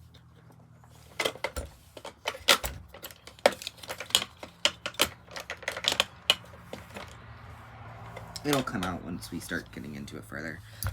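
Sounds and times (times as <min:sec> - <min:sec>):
metal parts clinking: 0:01.0 - 0:07.2.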